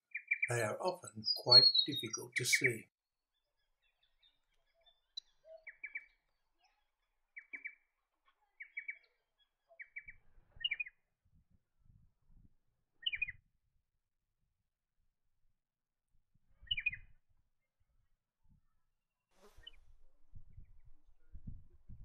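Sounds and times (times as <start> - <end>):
bird calling in quick notes: 0.2 - 2.8.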